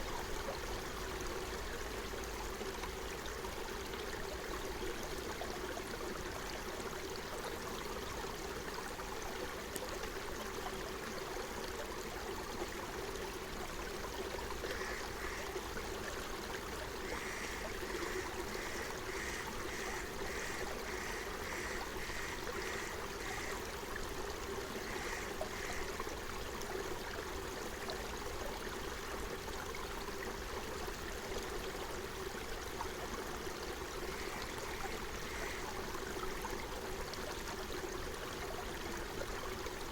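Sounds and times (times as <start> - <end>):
stream flowing: 0.0 - 39.9
bird short call: 17.1 - 23.6.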